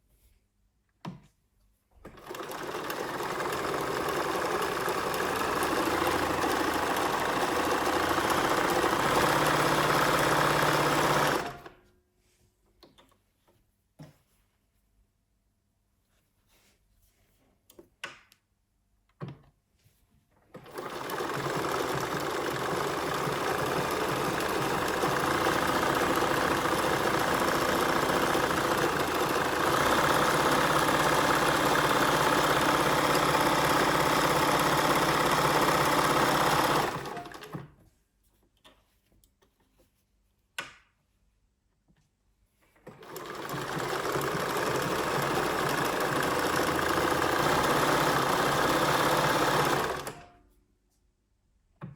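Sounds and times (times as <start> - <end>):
sewing machine clicks: 2.1 - 11.8, 20.5 - 37.7, 42.8 - 50.4
sewing machine running: 2.2 - 11.7, 20.5 - 37.6, 42.9 - 50.4.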